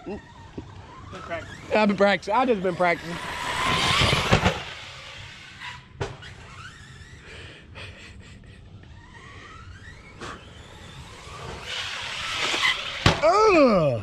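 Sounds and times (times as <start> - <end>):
electric motor whining: 0.0 - 7.2, 8.8 - 14.0
toy truck hitting ground: 3.2 - 5.4, 11.2 - 13.4.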